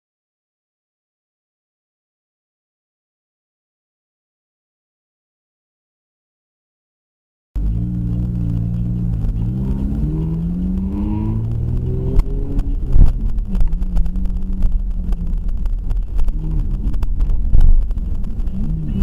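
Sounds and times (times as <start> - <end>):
car engine accelerating: 7.6 - 19.0.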